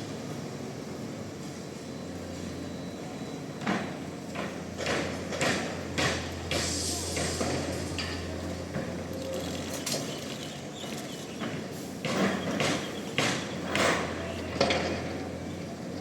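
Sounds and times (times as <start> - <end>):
construction machinery engine hum: 0.0 - 16.0.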